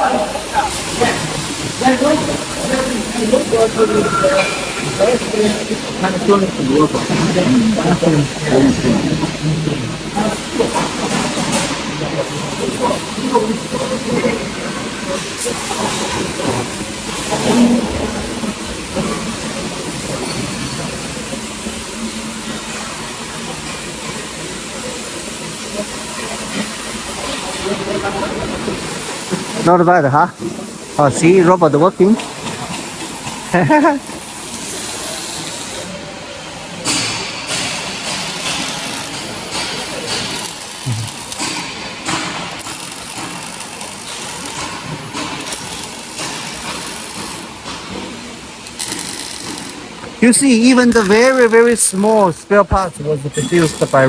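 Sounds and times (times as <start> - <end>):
machinery hiss and rumble: 0.0 - 54.0
robotic welding hiss: 32.7 - 36.0, 36.9 - 48.0, 48.6 - 52.3, 53.3 - 54.0
machinery clatter: 36.7 - 54.0.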